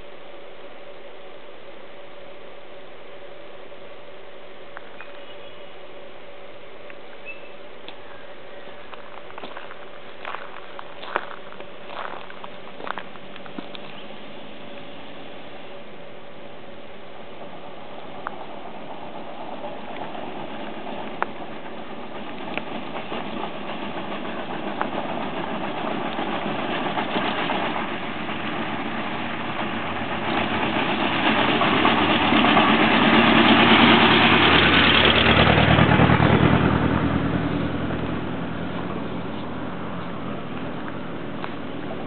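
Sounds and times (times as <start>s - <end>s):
engine running with low beat: 29.5s - 42.0s.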